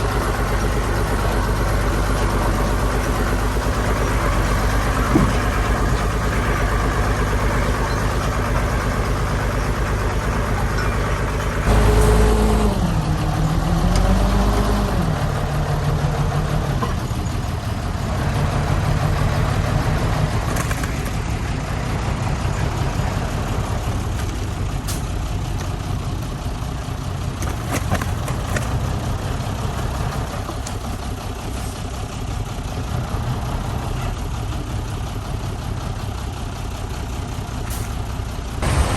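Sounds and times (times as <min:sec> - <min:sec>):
heavy diesel engine revving: 0:00.0 - 0:20.6, 0:32.4 - 0:34.5, 0:35.2 - 0:38.9.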